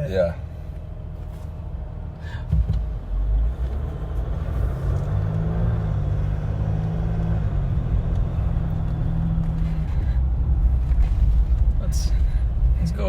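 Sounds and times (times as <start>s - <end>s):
diesel engine low drone: 0.0s - 13.0s
road noise: 0.0s - 13.0s
knocks: 2.5s - 2.9s.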